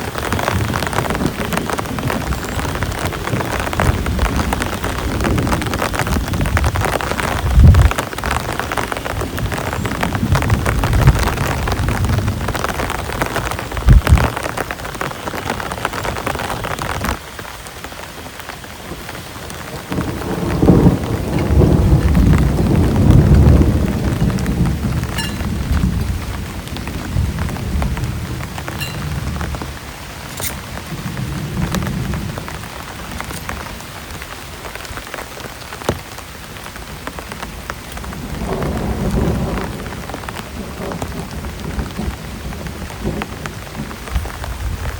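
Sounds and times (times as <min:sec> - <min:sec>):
rolling thunder: 0:00.0 - 0:14.6, 0:19.6 - 0:33.8, 0:38.0 - 0:44.9
heavy rain: 0:00.0 - 0:44.9
sharp thunder crack: 0:19.9 - 0:29.7.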